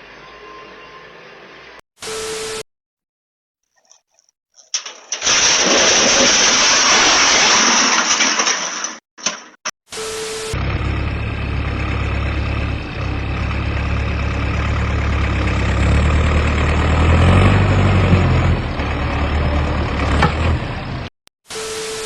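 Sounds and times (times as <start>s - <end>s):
heavy truck engine running: 10.5s - 21.1s.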